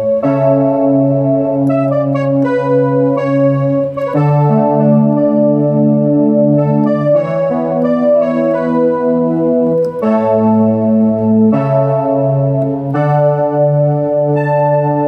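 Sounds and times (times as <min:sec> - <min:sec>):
keyboard playing held brass chords: 0:00.0 - 0:15.0.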